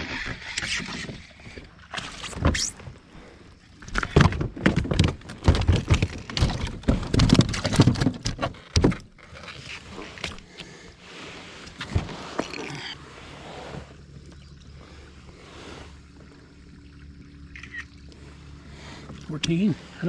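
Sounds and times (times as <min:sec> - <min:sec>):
thumps and knocks on a kayak: 0:03.8 - 0:10.4.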